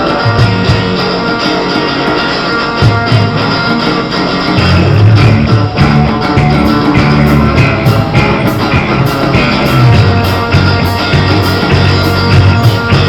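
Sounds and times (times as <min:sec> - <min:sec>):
guitar: 0:00.0 - 0:13.0
live rock band playing: 0:00.0 - 0:13.0
heavy bass line: 0:02.6 - 0:13.0.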